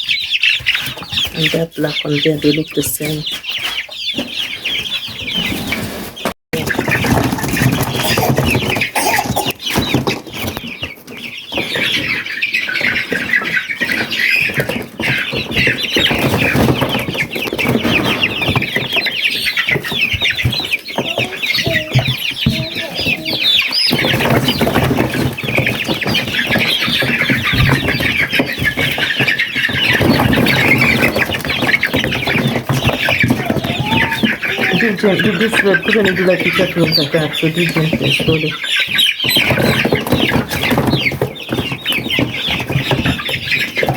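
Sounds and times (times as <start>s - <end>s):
chicks peeping and clucking: 0.0s - 43.9s
knocks and rustles: 5.2s - 36.7s, 37.5s - 43.9s.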